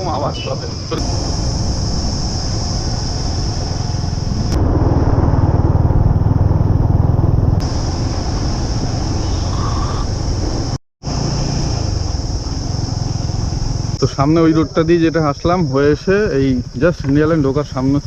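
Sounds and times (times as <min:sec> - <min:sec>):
crickets chirping: 0:00.0 - 0:06.6, 0:07.6 - 0:18.0
low rumble: 0:00.9 - 0:14.0.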